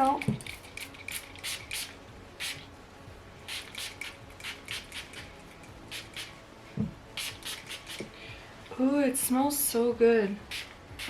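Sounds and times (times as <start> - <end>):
spray bottle spritzing: 0.4 - 2.6, 3.5 - 5.3, 5.9 - 6.3, 7.2 - 8.1, 10.5 - 11.0
soft thump: 6.8 - 7.0.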